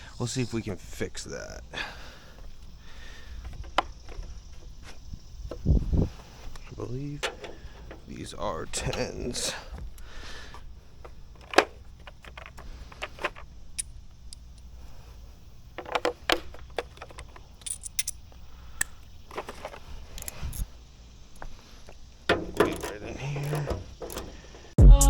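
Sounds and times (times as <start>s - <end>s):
metallic clinks of tools and bolts: 15.8s - 20.7s, 22.3s - 24.5s.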